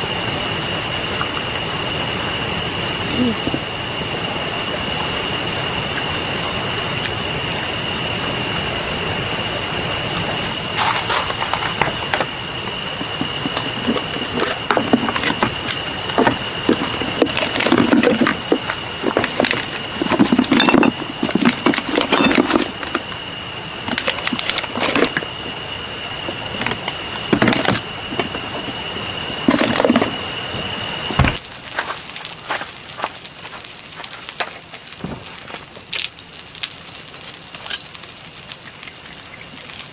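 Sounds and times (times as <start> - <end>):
thin high whine: 0.0 - 31.4
steady hiss: 0.0 - 39.9.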